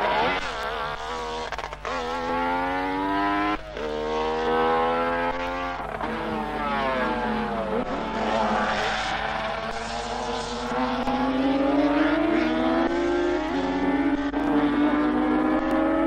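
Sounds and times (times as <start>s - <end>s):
racing engine at high revs: 0.0s - 16.0s.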